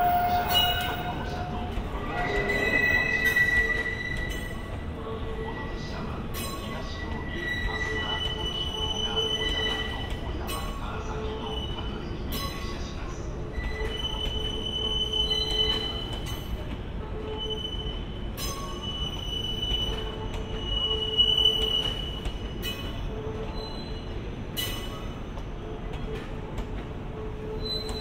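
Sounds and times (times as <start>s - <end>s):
train wheels squealing: 0.0s - 26.3s, 27.2s - 28.0s
wheels rumbling on rails: 0.0s - 28.0s.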